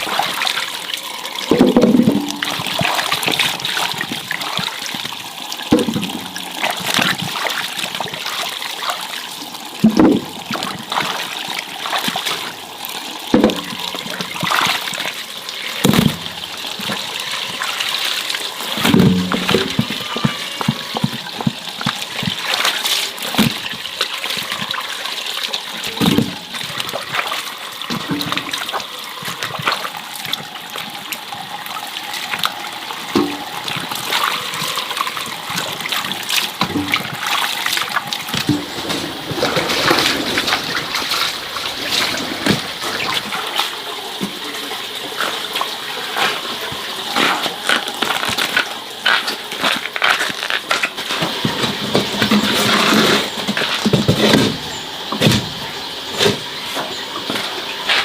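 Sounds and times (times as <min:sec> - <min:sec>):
water splashing and trickling: 0:00.0 - 0:58.0
knocks and clatters: 0:01.5 - 0:02.8, 0:18.8 - 0:22.4.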